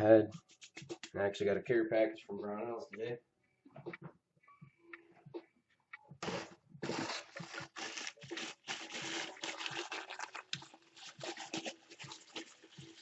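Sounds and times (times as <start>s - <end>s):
parcel packaging rustling: 6.2s - 13.0s.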